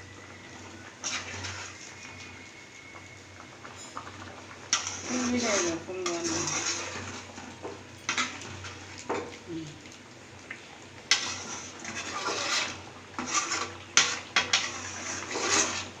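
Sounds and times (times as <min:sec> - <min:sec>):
spoon stirring in cooking pot: 0:01.0 - 0:02.3, 0:03.6 - 0:09.4, 0:11.1 - 0:16.0.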